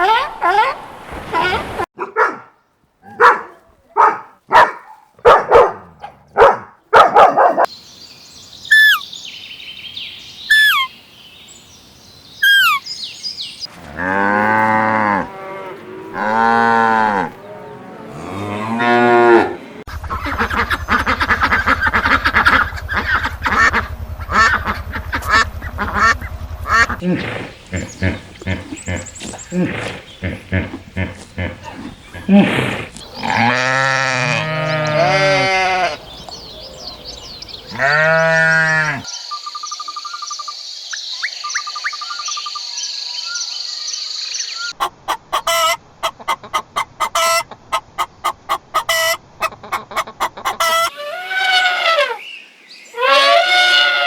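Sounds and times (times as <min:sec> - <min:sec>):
high chirps: 0:08.7 - 0:09.1, 0:12.4 - 0:13.0
cattle mooing: 0:13.8 - 0:19.8, 0:22.3 - 0:36.0, 0:37.7 - 0:39.1
dense chatter of animal calls: 0:17.1 - 0:40.6
low hum: 0:19.4 - 0:32.1.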